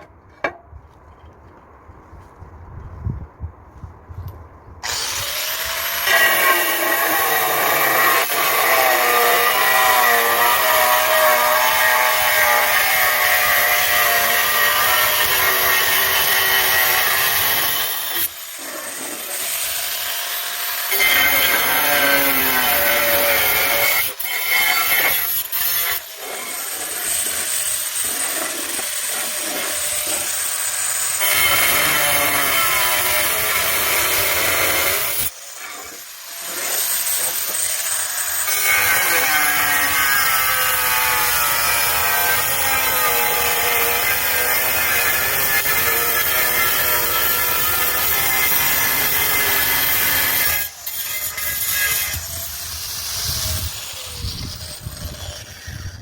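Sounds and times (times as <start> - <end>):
saw cutting through material: 4.8 - 56.0.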